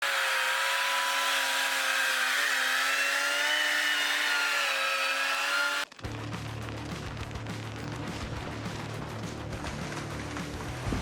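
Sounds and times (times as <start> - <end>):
chainsaw engine revving high: 0.0 - 5.9.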